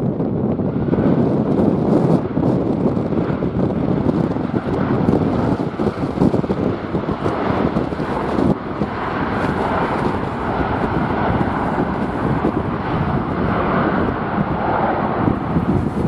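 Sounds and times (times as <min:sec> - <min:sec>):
jet engines: 0:00.0 - 0:16.0
wind buffeting microphone: 0:00.0 - 0:16.0.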